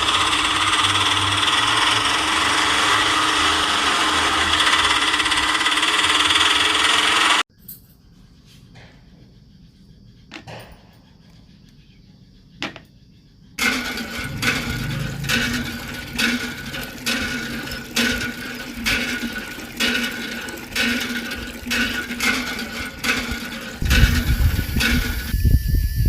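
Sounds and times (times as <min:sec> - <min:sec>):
small mechanism clacking: 0:00.0 - 0:07.4, 0:13.6 - 0:25.5.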